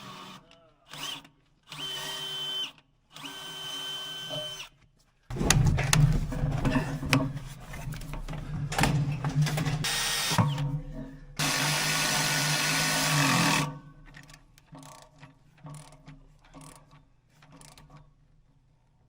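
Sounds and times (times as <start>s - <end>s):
power drill running: 0.0s - 4.7s, 9.8s - 10.6s, 11.4s - 13.8s
tool handling knocks and clicks: 5.3s - 11.3s.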